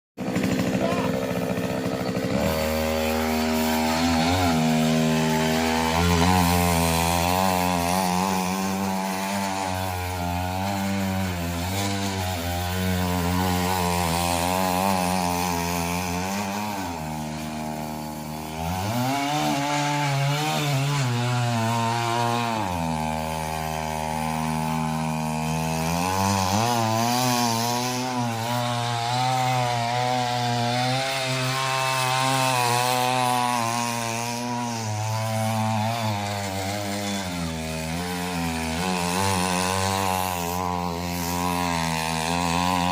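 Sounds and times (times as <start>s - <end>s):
two-stroke petrol engine running: 0.2s - 19.6s, 37.1s - 42.9s.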